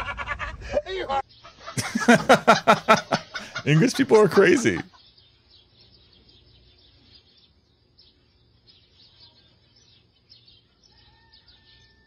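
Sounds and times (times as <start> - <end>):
faint high bird chirps: 4.9 - 12.0.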